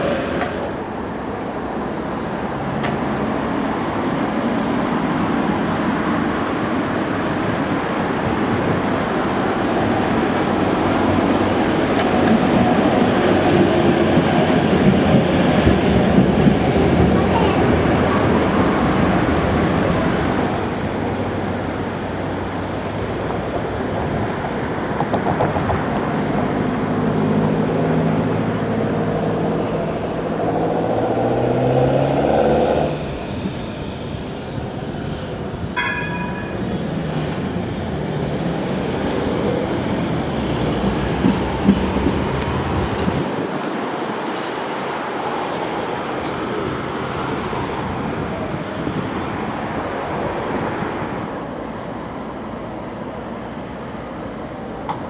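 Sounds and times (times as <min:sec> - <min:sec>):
tram rolling and rumbling: 0:00.0 - 0:55.0
tram motors whining: 0:32.8 - 0:44.5
brief high tone: 0:35.8 - 0:38.4.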